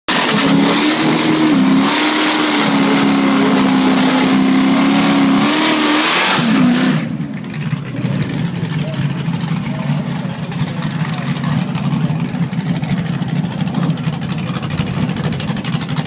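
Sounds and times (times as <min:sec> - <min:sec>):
engine revving high: 0:00.1 - 0:07.2.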